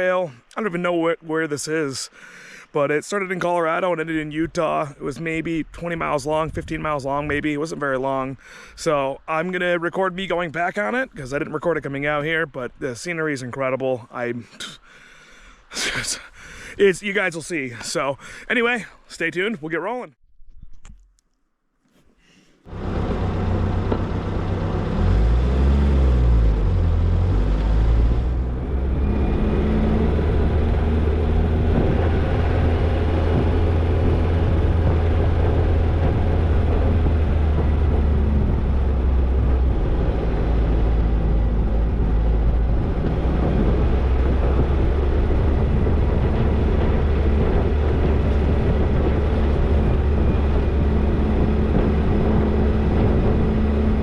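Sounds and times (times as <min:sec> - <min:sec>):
car engine running: 0:22.7 - 0:54.0.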